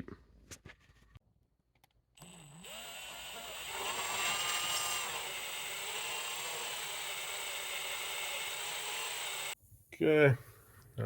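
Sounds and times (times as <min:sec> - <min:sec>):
electric drill whirring: 0:02.2 - 0:09.6.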